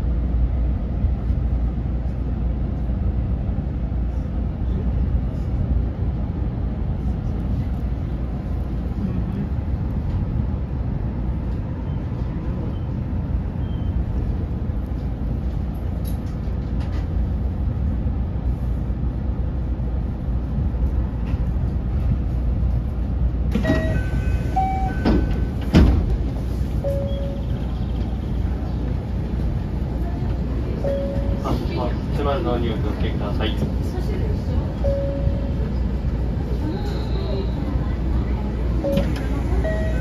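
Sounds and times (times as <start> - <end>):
electric train running rumble: 0.0 - 40.0.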